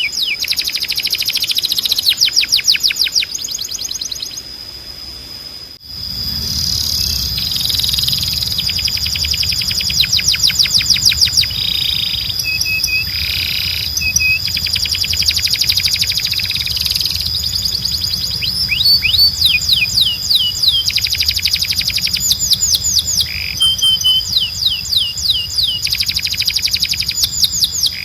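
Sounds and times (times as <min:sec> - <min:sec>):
canary singing: 0:00.0 - 0:04.5, 0:05.9 - 0:28.0
high whistle-like tone: 0:05.8 - 0:28.0.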